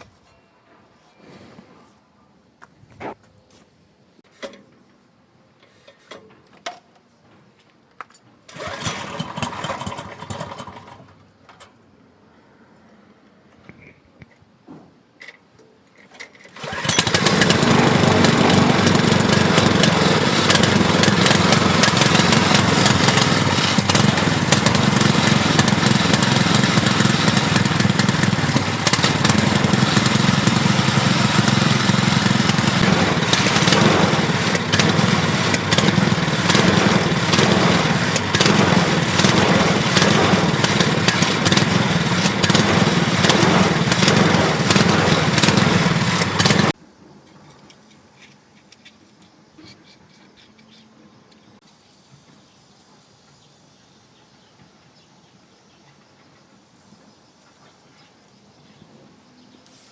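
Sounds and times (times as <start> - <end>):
small engine running: 8.5 - 11.1, 16.5 - 46.8.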